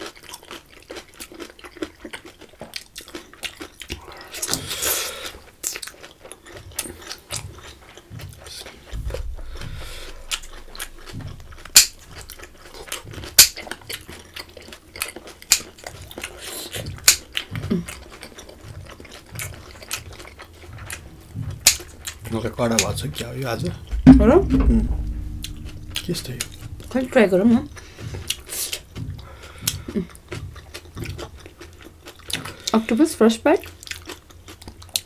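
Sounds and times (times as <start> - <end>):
wet chewing mouth clicks: 0.0 - 8.9.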